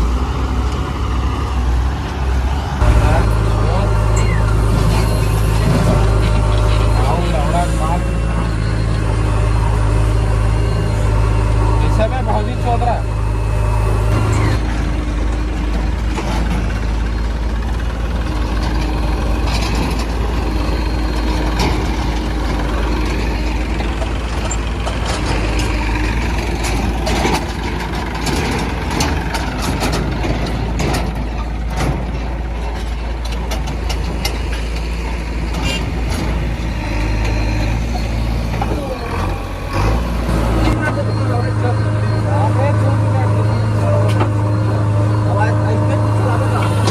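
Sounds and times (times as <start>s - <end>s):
diesel machinery running: 0.0s - 46.9s
knocks and clatter: 14.2s - 38.8s.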